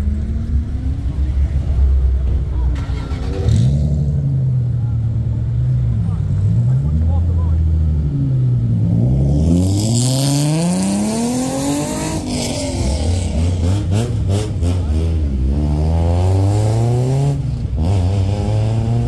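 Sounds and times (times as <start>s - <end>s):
car engine accelerating through gears: 6.2s - 19.0s.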